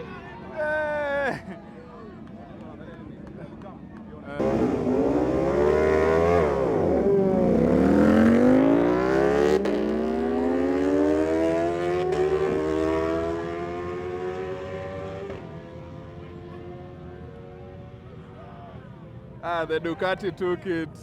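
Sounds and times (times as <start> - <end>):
motorcycles accelerating with upshifts: 4.4 - 18.4.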